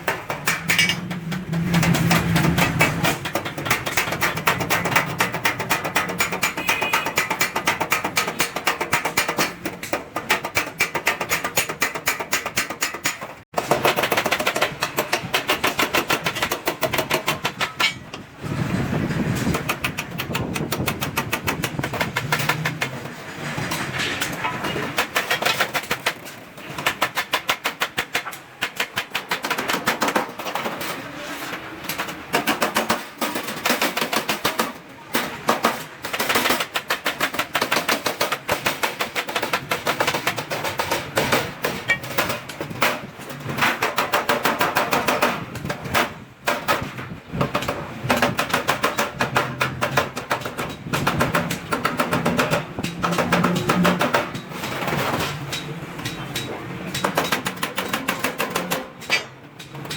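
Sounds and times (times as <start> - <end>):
hammer striking steel sheet: 0.0 - 30.9.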